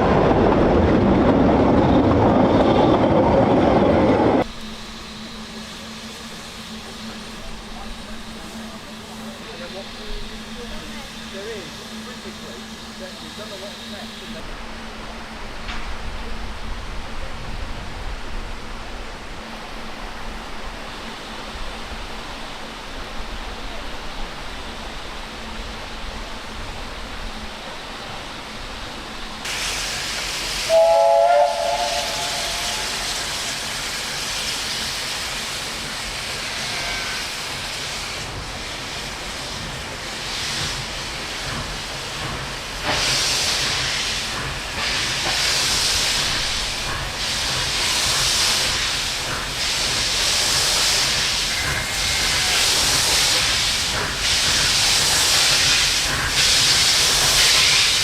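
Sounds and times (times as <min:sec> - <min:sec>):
steam hissing: 0:04.2 - 0:14.6, 0:29.4 - 0:58.0
steam whistle blast: 0:30.7 - 0:33.6.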